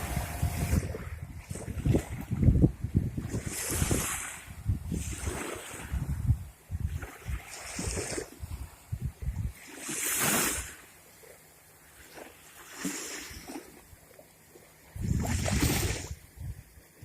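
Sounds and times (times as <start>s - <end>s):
wind rumbling on microphone: 0.0s - 10.8s, 14.9s - 17.0s
sea surf washing in: 0.0s - 11.0s.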